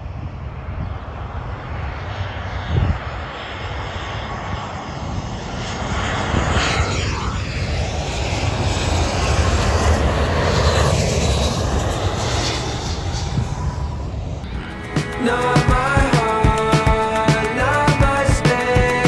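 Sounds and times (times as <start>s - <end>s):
jet engine whistling tone: 0.0s - 18.9s
jet airliner engine rumble: 0.0s - 19.0s.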